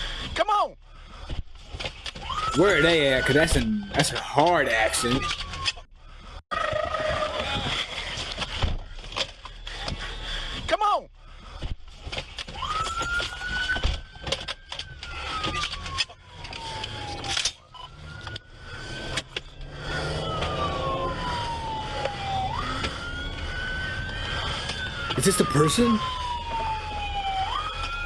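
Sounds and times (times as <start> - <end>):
police siren slow wail: 14.9 - 28.0.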